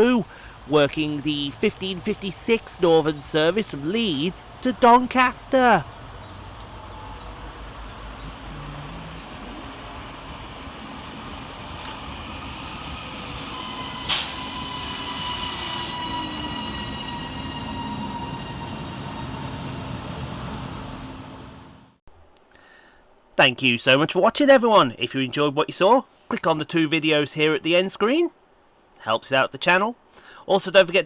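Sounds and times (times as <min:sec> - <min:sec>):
electric train motor whine: 0:06.1 - 0:22.0
train brakes squealing: 0:08.3 - 0:21.3
air hiss: 0:09.7 - 0:16.4.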